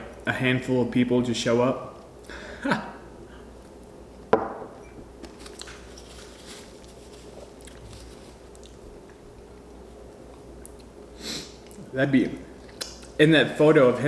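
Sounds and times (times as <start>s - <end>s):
person chewing food: 6.8s - 11.8s.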